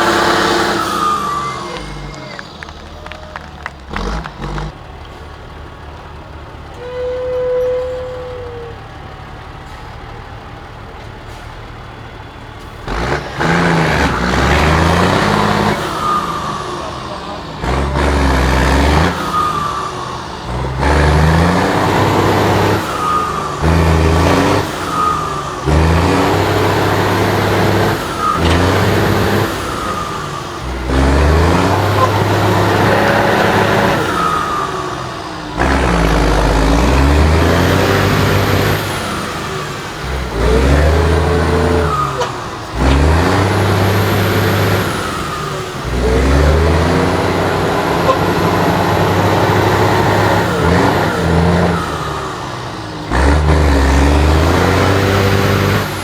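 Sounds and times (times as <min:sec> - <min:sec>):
truck engine revving: 0:00.0 - 0:56.0.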